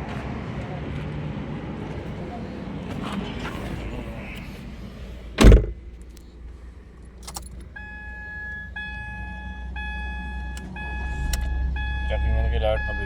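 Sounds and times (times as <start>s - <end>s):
low steady rumble: 1.9s - 13.0s
heavy thump: 5.4s - 5.8s
car warning chime: 7.6s - 13.0s
click: 10.5s - 10.7s, 11.3s - 11.5s.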